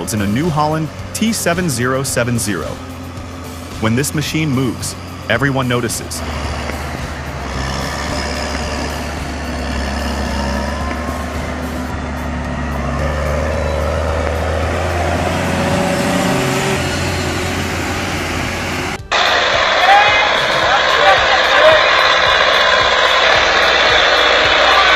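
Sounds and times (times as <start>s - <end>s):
tractor diesel engine roaring: 0.0s - 24.9s.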